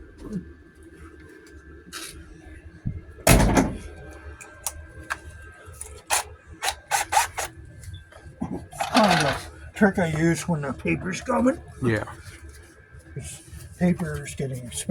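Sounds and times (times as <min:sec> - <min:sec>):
loud clunk: 0:03.3 - 0:03.9.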